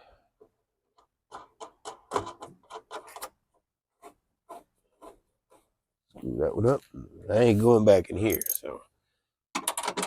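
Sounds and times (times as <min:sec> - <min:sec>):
screwdriver clicking and scraping: 0:08.3 - 0:08.6.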